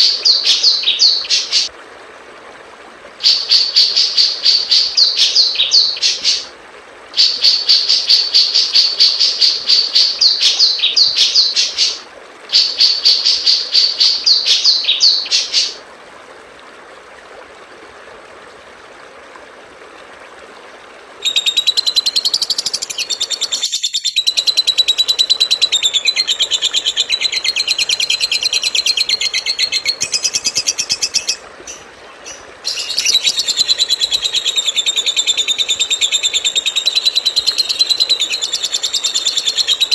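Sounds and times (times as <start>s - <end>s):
small songbirds singing: 21.2s - 35.1s.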